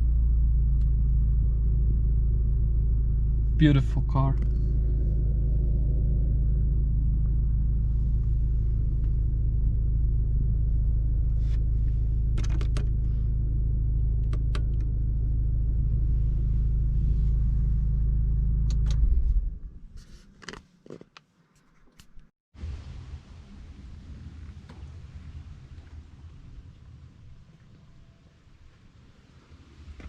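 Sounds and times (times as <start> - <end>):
car engine rumble from inside: 0.0 - 20.6.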